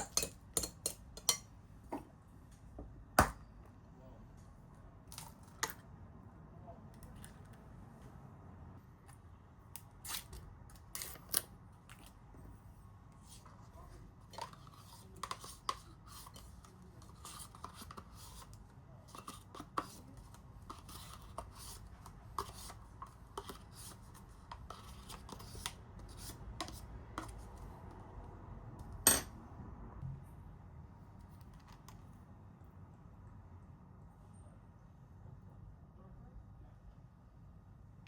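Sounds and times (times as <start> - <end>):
kitchen utensils and dishes clinking: 0.0 - 1.5.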